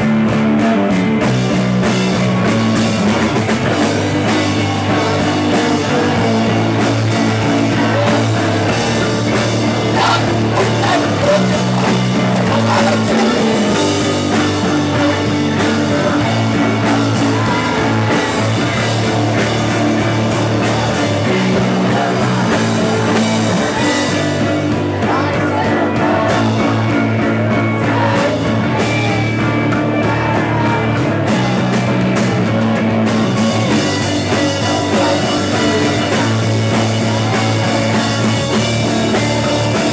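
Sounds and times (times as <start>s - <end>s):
bass line: 0.0s - 39.9s
electric guitar: 0.0s - 39.9s
live rock band playing: 0.0s - 39.9s
person singing: 3.7s - 39.9s.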